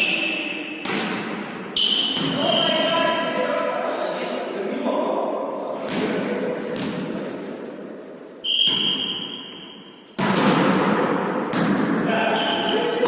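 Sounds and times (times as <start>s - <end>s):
high steady whistle: 8.4s - 10.0s
volleyball being struck: 8.5s - 12.0s.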